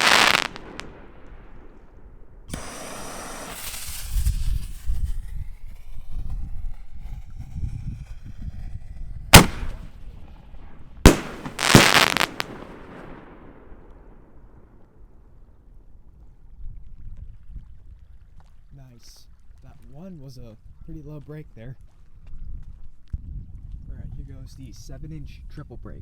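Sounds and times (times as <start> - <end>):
firework crackle: 0.0 - 8.7, 9.3 - 14.0
firework shell bangs: 2.5 - 5.0, 9.4 - 10.0, 11.1 - 13.2.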